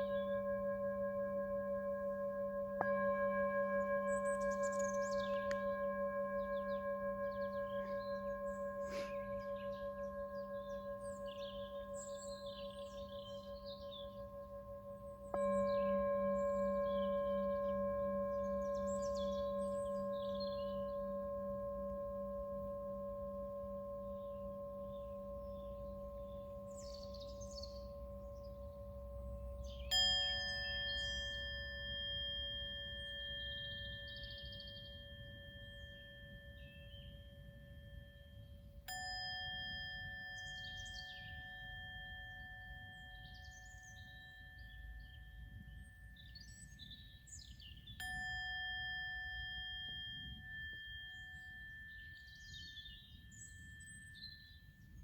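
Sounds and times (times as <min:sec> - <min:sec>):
singing bowls ringing: 0:00.0 - 0:55.0
birds chirping: 0:02.8 - 0:21.3, 0:39.2 - 0:49.3.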